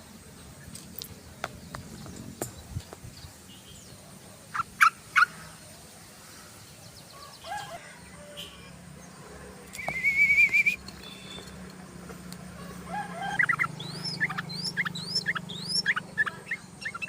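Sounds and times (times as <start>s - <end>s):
bird calling: 9.7s - 11.6s, 12.6s - 17.0s.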